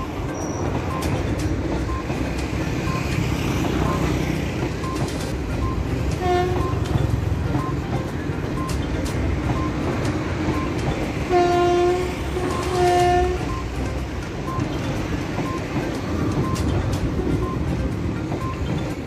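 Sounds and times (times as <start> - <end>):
train rumbling on rails: 0.0 - 19.0
locomotive horn blasts: 6.2 - 6.9, 11.3 - 13.6.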